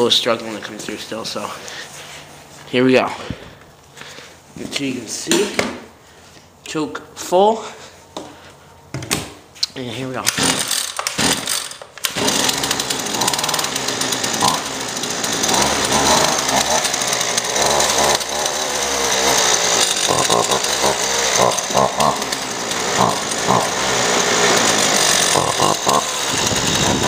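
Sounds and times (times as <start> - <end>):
string trimmer engine starting: 10.2 - 27.0.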